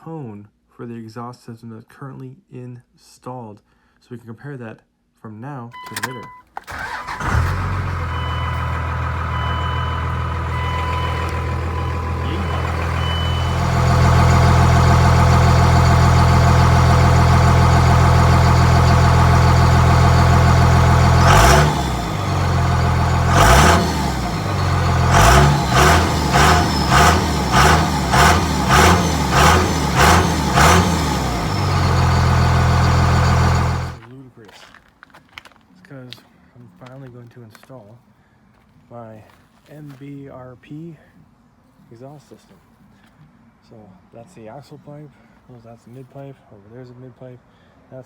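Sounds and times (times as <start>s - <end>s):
diesel pickup engine revving: 6.7s - 34.0s.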